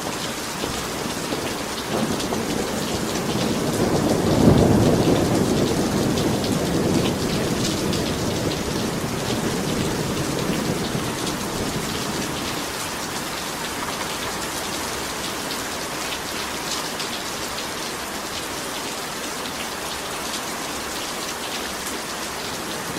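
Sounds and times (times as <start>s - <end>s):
heavy rain pouring: 0.0s - 22.9s
thunder rolling: 0.6s - 12.8s.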